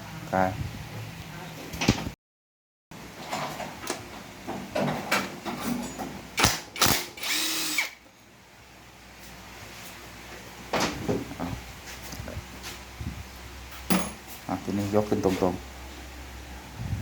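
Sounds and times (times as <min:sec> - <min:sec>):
power driver whining: 0:06.4 - 0:08.0
metal knocks and clinks: 0:13.9 - 0:14.2.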